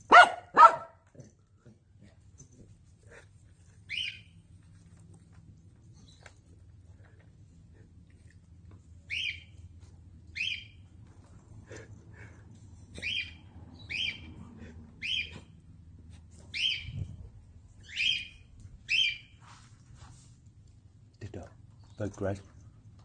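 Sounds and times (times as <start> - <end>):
bird sharp calls: 13.0 - 14.2, 15.0 - 15.3, 16.6 - 17.0, 17.9 - 19.3.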